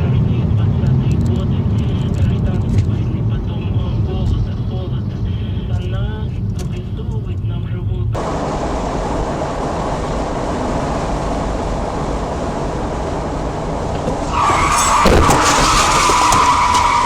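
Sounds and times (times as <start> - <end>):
car road noise: 0.0 - 17.0
tyres squealing in a skid: 13.4 - 17.0.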